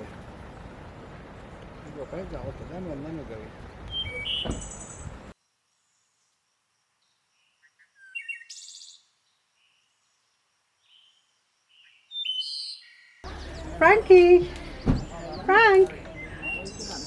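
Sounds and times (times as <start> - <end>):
birds chirping and singing: 3.9 - 5.3, 10.9 - 17.0.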